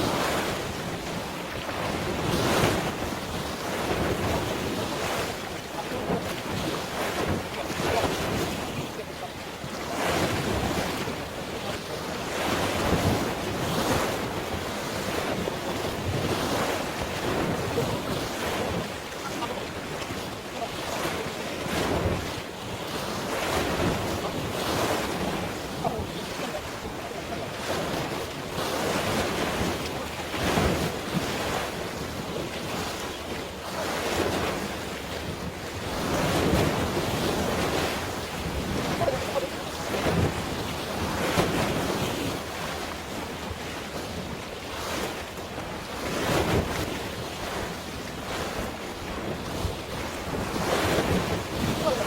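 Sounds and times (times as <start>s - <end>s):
sea waves splashing: 0.0s - 52.0s
wind buffeting microphone: 33.8s - 42.7s, 45.9s - 52.0s.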